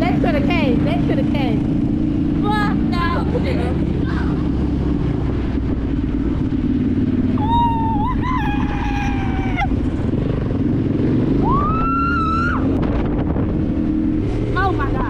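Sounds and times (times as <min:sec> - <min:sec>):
dirt bike engine running: 0:00.0 - 0:15.0
person screaming: 0:07.4 - 0:09.7, 0:11.4 - 0:12.6.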